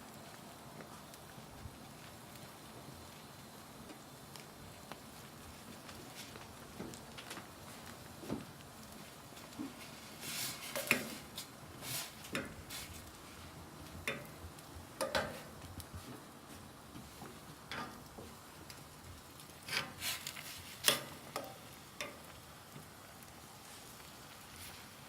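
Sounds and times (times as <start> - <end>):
utensil scraping a cooking pot: 9.6 - 14.3, 19.6 - 22.3.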